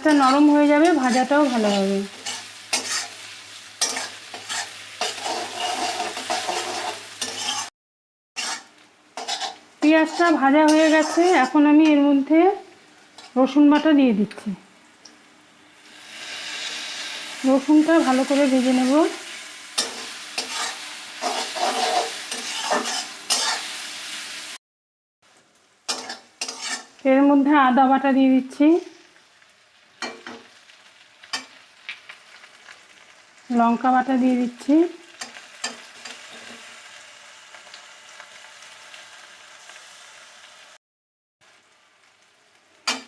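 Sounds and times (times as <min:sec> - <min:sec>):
onions sizzling in hot oil: 0:00.0 - 0:07.7, 0:08.4 - 0:24.6, 0:25.2 - 0:40.8, 0:41.4 - 0:43.0
stirring strokes scraping pan: 0:00.0 - 0:07.7, 0:08.4 - 0:12.0, 0:15.8 - 0:24.1, 0:25.9 - 0:27.0.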